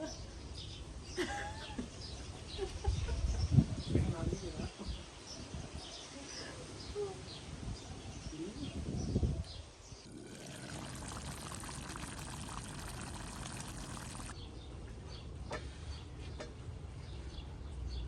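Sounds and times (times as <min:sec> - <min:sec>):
liquid pouring: 0:10.1 - 0:14.4
faint birdsong: 0:10.8 - 0:18.0.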